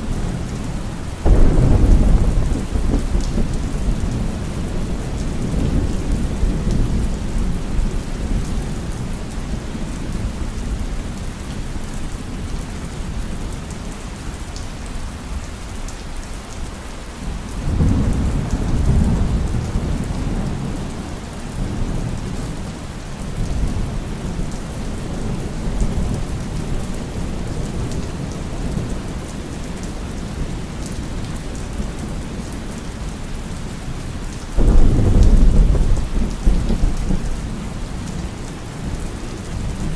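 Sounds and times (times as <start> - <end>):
heavy rain: 0.0 - 39.9
low rolling thunder: 1.2 - 11.1, 17.6 - 29.2, 34.6 - 39.9
loud thunder clap: 1.3 - 4.4, 34.6 - 37.4.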